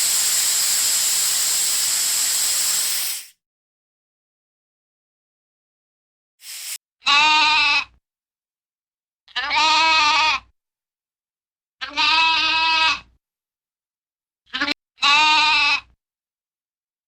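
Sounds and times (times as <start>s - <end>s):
brief hiss: 0.0s - 3.4s, 6.4s - 6.8s
farm animal bleating: 7.0s - 8.0s, 9.3s - 10.5s, 11.8s - 13.1s, 14.5s - 16.0s.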